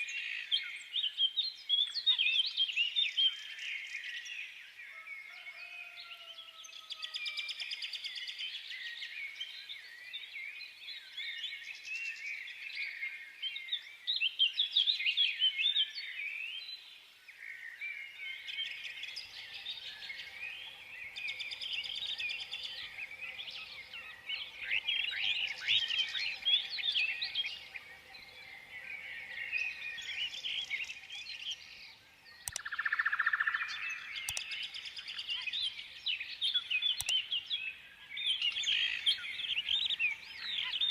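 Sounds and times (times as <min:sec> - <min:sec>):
small birds chirping: 0:00.0 - 0:40.9
sharp clicks: 0:32.4 - 0:33.1, 0:34.2 - 0:34.9, 0:36.9 - 0:37.3.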